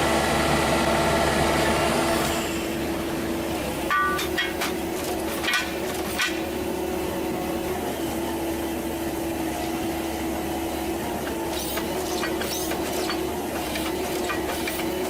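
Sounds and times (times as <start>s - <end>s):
large machine humming: 0.0s - 15.0s
sharp metallic knocks: 3.9s - 6.6s.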